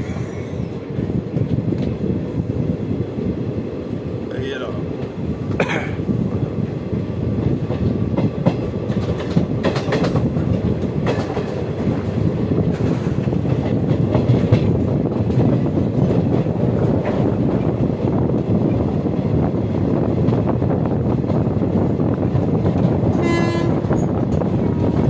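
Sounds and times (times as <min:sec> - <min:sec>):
train rumble: 0:00.0 - 0:25.0
wheels clicking over rail joints: 0:07.7 - 0:18.8.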